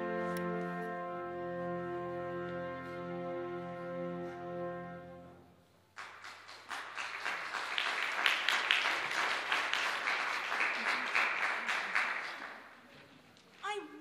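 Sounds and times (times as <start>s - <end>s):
audience applauding: 5.9s - 12.9s.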